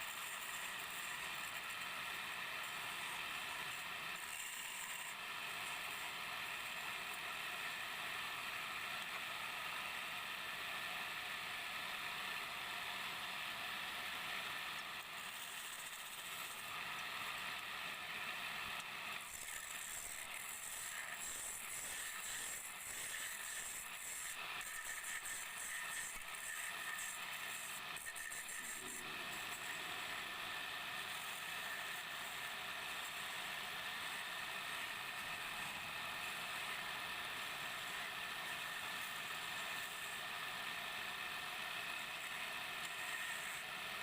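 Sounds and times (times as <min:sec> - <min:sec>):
wood lathe tool scraping: 0:00.0 - 0:01.8, 0:02.6 - 0:06.8, 0:15.2 - 0:16.6, 0:19.2 - 0:30.4, 0:42.2 - 0:43.6.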